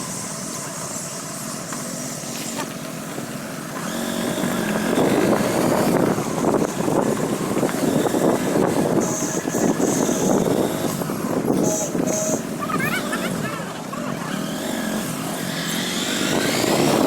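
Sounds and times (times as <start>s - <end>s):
motorcycle engine accelerating: 0.0s - 17.0s
rushing wind noise: 4.0s - 13.5s, 14.5s - 17.0s.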